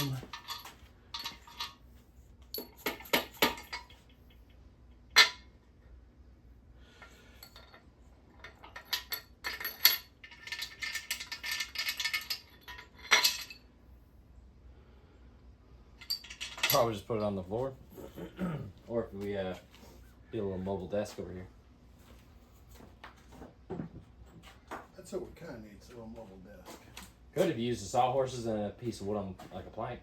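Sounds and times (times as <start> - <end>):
metal parts rattling: 0.0 - 1.8, 2.5 - 5.5, 7.0 - 13.7, 16.0 - 17.3
metallic clinks of engine parts: 0.0 - 5.6, 7.0 - 13.8, 15.9 - 17.4.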